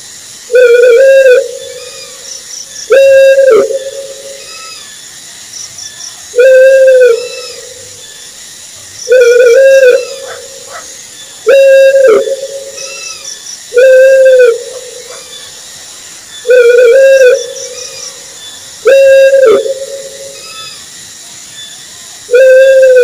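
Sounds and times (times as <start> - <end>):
owl hooting: 0.5 - 5.0, 6.3 - 8.0, 9.1 - 15.6, 16.4 - 20.9, 22.3 - 23.0.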